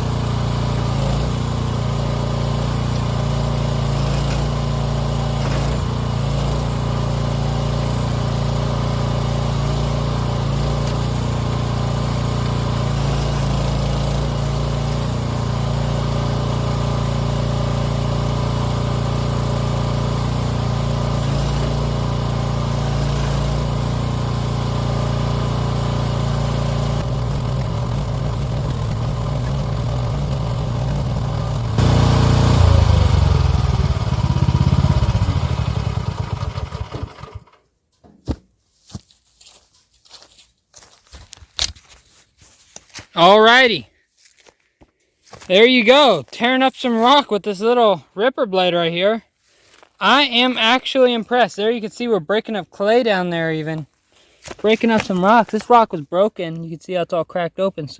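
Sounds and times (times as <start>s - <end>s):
excavator engine running: 0.0s - 37.6s.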